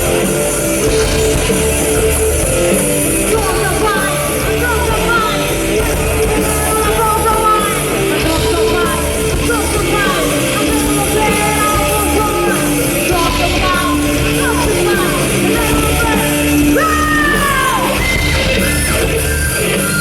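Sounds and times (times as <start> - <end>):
live rock band playing: 0.0 - 20.0
person singing: 3.2 - 18.1.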